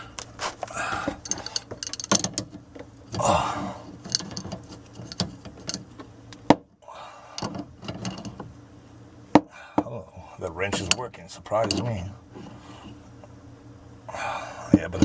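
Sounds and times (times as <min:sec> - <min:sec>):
wrench clicking on pipe fittings: 0:01.1 - 0:03.2, 0:04.0 - 0:06.0, 0:07.4 - 0:08.4, 0:11.6 - 0:11.9.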